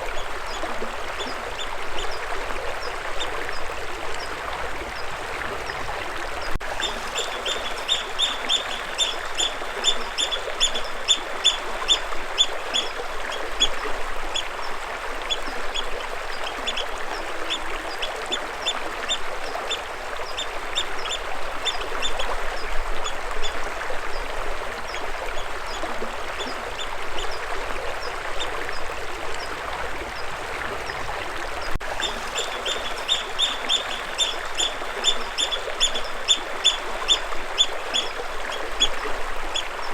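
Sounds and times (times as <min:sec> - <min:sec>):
stream water flowing: 0:00.0 - 0:39.9
bird chirping rapidly: 0:06.8 - 0:11.6, 0:32.0 - 0:36.8.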